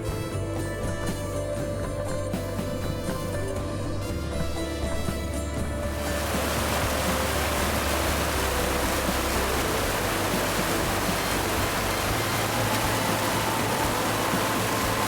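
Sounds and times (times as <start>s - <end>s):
waterfall roaring: 6.0s - 15.0s.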